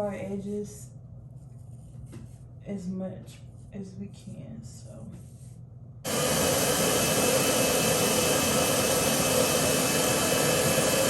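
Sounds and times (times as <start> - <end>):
hair dryer blowing: 6.1 - 11.0.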